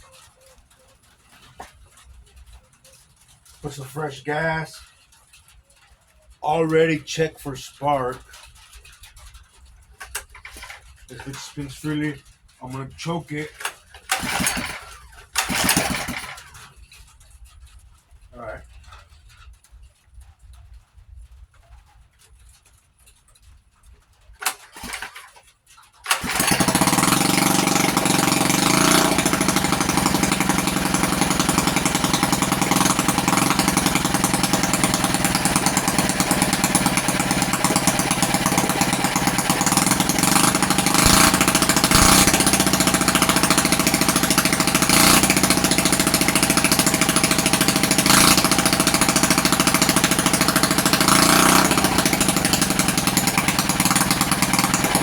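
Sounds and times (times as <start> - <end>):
small motorcycle engine running: 10.0 - 11.8, 13.0 - 16.8, 24.4 - 25.4, 26.0 - 55.0.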